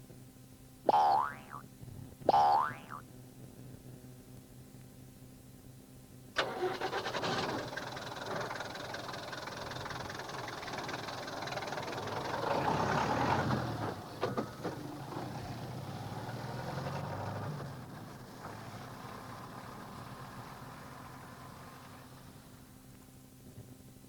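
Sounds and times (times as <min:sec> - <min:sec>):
engine starter rapid clicking: 0:06.4 - 0:11.5
engine running: 0:06.4 - 0:22.8.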